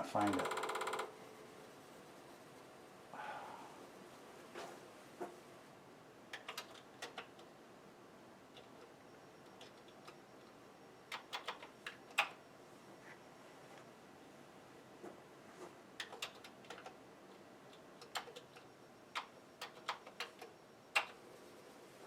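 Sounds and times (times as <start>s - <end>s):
keyboard typing clicks: 6.3s - 7.5s, 8.6s - 12.4s, 16.0s - 21.2s.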